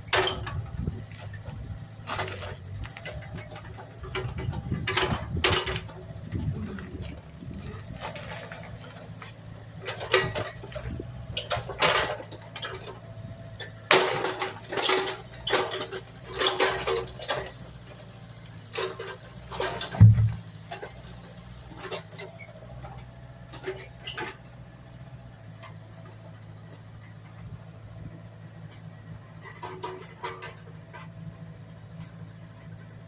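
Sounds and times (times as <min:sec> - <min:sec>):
engine idling: 0:00.0 - 0:33.0
rustling and scraping: 0:00.1 - 0:13.0
heavy thump: 0:20.0 - 0:20.4.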